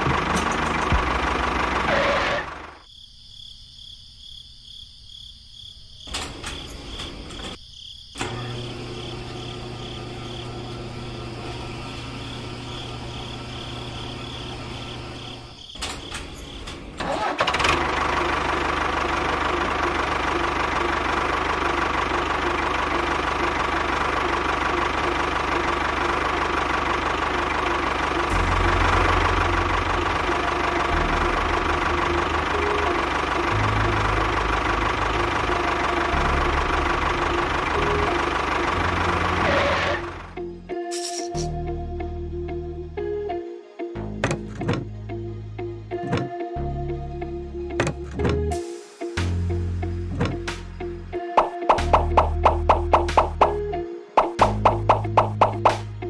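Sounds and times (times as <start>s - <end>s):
tractor engine idling: 0.0s - 2.8s, 16.8s - 40.4s, 51.4s - 56.0s.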